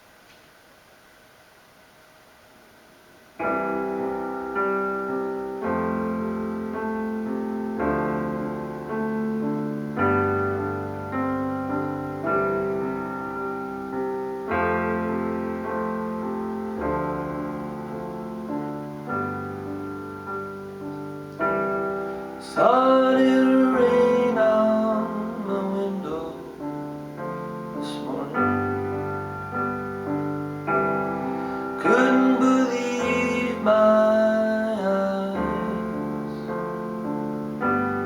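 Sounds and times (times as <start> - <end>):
slow piano chords: 2.5 - 38.0.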